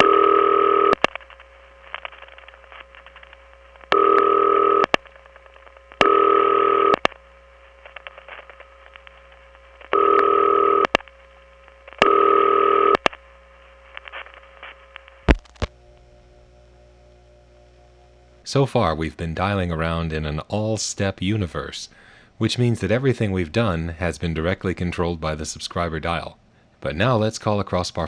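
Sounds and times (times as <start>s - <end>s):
telephone ringback tone: 0.0s - 1.0s, 3.9s - 4.9s, 6.0s - 7.0s, 9.9s - 11.0s, 12.0s - 13.0s
line crackles and clicks: 0.0s - 18.5s
faint hum: 0.0s - 28.0s.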